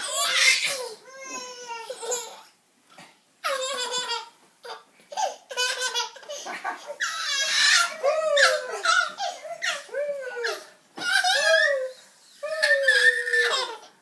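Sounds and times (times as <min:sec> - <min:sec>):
toddler laughing and squealing: 0:05.2 - 0:13.9.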